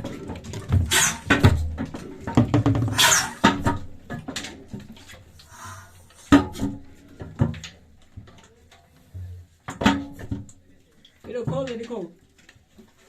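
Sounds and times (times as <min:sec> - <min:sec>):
hard objects knocking and clattering: 0:00.0 - 0:05.2, 0:06.2 - 0:08.6, 0:09.2 - 0:12.0.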